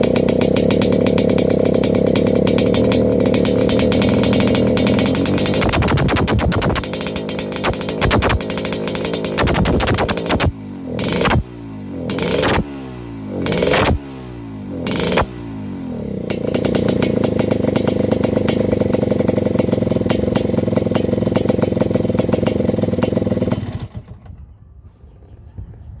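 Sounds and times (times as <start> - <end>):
two-stroke engine revving: 0.0 - 24.2.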